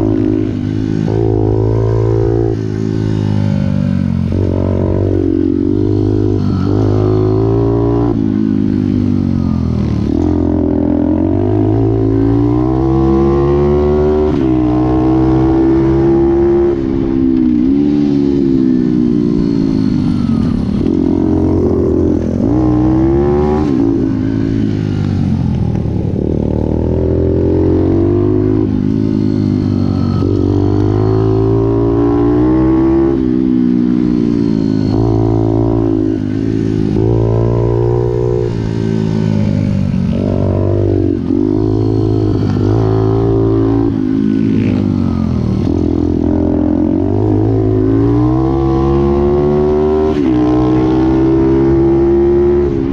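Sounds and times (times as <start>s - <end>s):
small motorbike engine revving: 0.0s - 52.9s.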